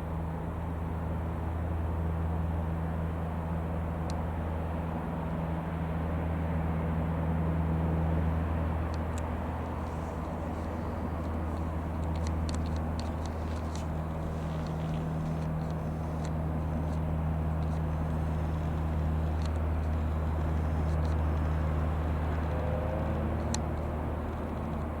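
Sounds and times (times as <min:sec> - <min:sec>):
airplane engine droning: 0:00.0 - 0:25.0
faint clicks: 0:08.9 - 0:25.0.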